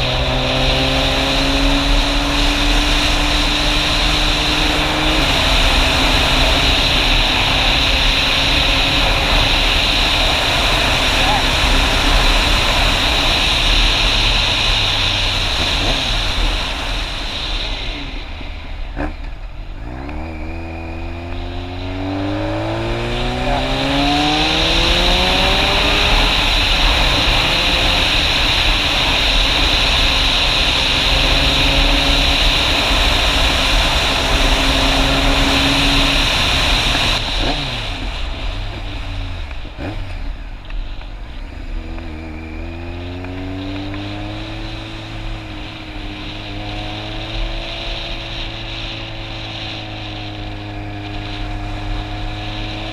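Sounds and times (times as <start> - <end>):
wind rush on microphone: 0.0 - 19.0
motorcycle engine accelerating: 0.0 - 52.9.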